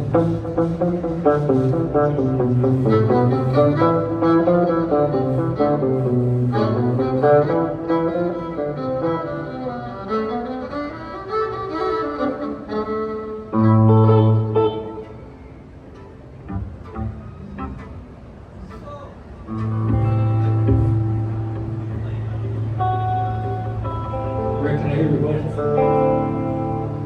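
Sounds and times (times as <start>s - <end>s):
bass: 0.0s - 7.8s, 19.5s - 27.0s
fiddle melody: 0.0s - 27.0s
guitar: 0.0s - 27.0s.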